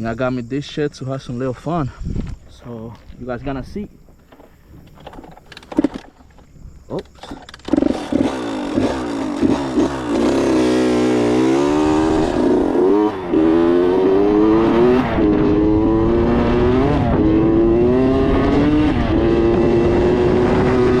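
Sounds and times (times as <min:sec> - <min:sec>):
dirt bike engine revving: 0:07.3 - 0:21.0.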